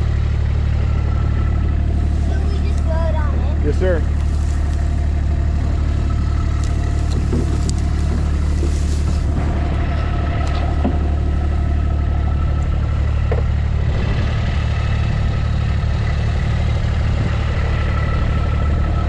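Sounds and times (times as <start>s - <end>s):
farm vehicle engine droning: 0.0s - 19.0s.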